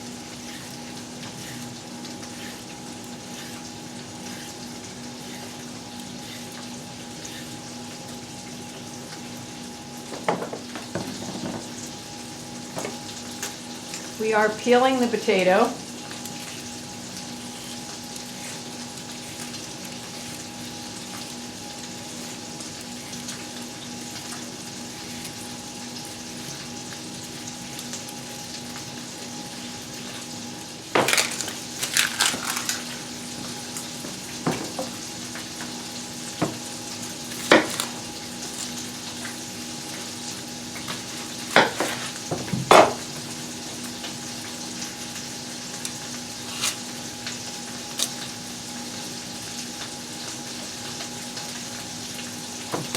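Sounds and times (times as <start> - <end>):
chicken sizzling in a frying pan: 0.0 - 52.9
kitchen utensils clicking and scraping: 31.0 - 35.0, 37.3 - 38.8, 40.8 - 43.1, 45.8 - 47.0.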